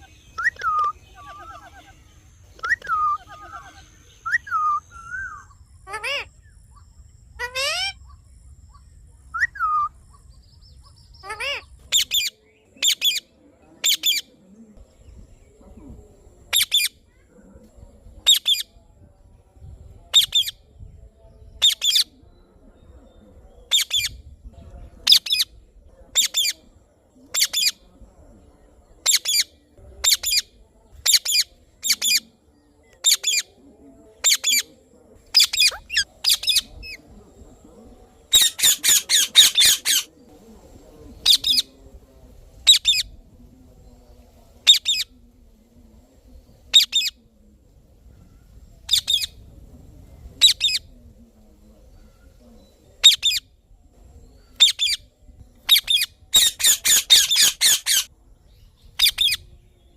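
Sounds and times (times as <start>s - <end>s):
parakeet high-pitched calls: 2.6s - 6.3s, 7.4s - 8.8s, 11.2s - 13.2s, 16.5s - 16.9s, 35.4s - 37.0s, 38.4s - 40.1s, 54.6s - 55.0s, 55.7s - 58.1s, 59.0s - 59.4s.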